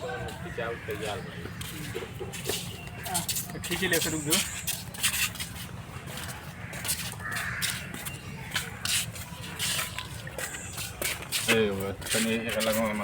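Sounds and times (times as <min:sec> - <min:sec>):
crow cawing: 0:06.6 - 0:08.0.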